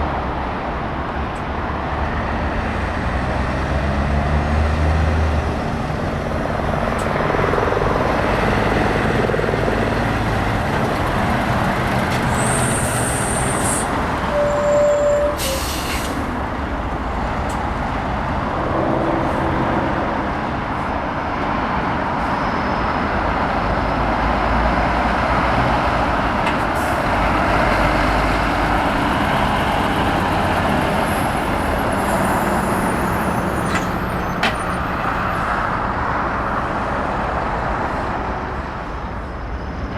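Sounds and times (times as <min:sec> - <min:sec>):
heavy trucks passing: 0:00.0 - 0:39.9
air brakes hissing: 0:12.4 - 0:16.4.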